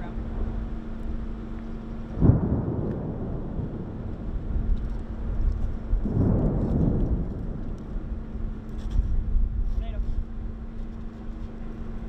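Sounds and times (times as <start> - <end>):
rolling thunder rumble: 2.0 - 9.6
thunder crack: 2.2 - 8.6.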